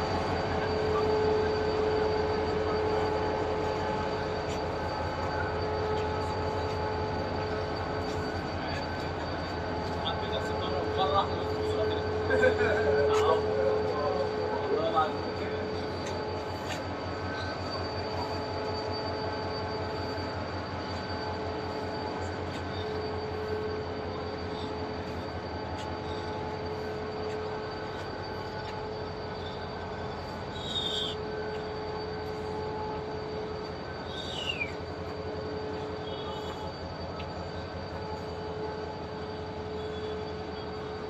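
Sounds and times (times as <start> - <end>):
train wheels rumbling: 0.0 - 41.0
high falling wheel squeals: 12.8 - 41.0.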